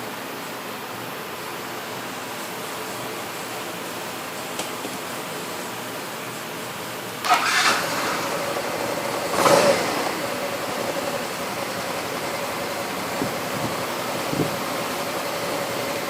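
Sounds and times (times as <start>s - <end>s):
scooter engine starting and idling: 7.2s - 16.0s.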